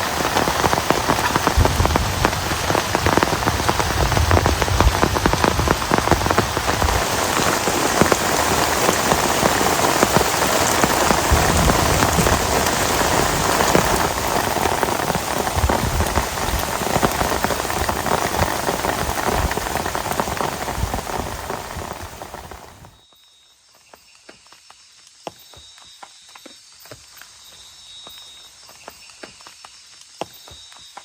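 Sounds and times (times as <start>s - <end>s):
heavy rain pattering: 0.0s - 23.0s.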